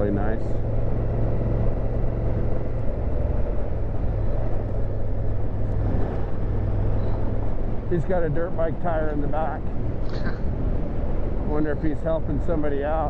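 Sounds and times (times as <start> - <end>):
motorcycle engine running: 0.0 - 8.8
road noise: 0.0 - 13.0
wind noise: 0.0 - 13.0.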